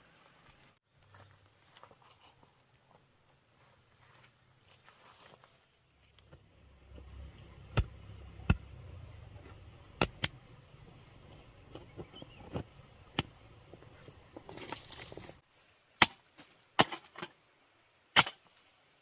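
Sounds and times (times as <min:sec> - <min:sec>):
chopping wood: 0:07.7 - 0:08.7, 0:09.9 - 0:10.4, 0:16.0 - 0:16.2, 0:16.8 - 0:17.3.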